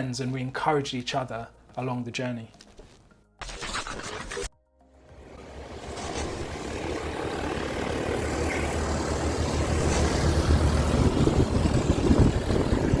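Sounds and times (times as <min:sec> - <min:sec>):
propeller aircraft engine rumble: 0:05.2 - 0:13.0.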